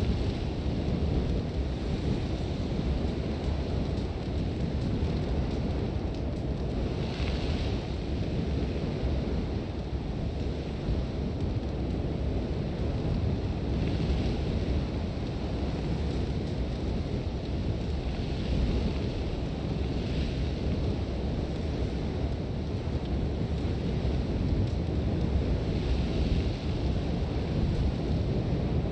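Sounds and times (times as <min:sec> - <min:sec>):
strong wind blowing: 0:00.0 - 0:28.9
hissing sand gusts: 0:12.0 - 0:28.9.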